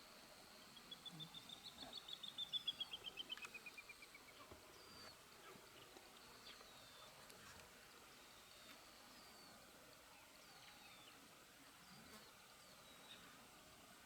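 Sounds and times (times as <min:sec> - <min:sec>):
faint high insect drone: 0:00.0 - 0:14.0.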